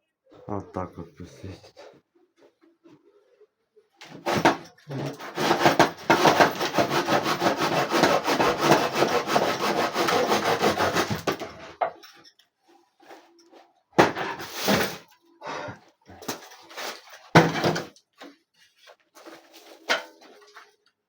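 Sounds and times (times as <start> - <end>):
rasping rubbing on wood: 4.2 - 11.5.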